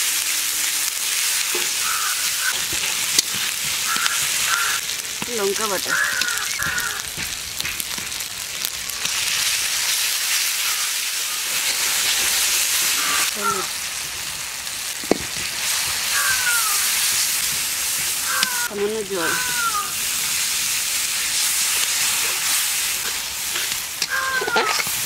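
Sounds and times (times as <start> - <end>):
food sizzling in hot oil: 0.0 - 25.0
metal spatula scraping wok: 20.0 - 25.0.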